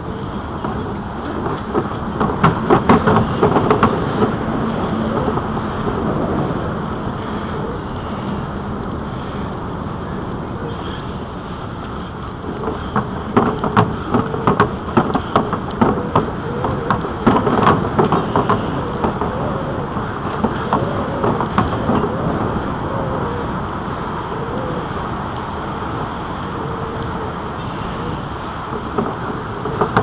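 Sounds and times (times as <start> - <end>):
bicycle knocks and rattles: 0.0 - 5.6, 12.5 - 19.4, 20.0 - 22.2, 28.6 - 30.0
wind and tyres rushing: 0.0 - 30.0.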